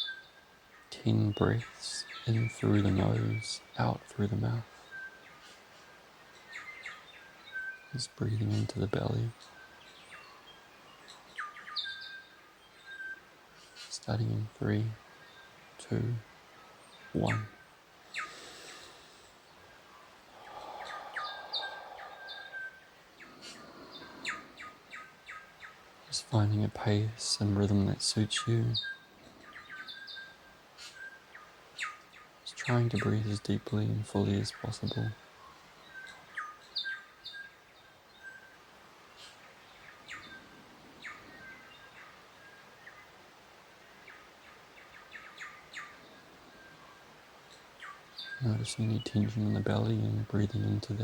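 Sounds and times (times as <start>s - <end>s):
faint background hiss: 0.0s - 51.0s
small birds chirping: 0.0s - 51.0s
soft breath: 18.1s - 24.9s.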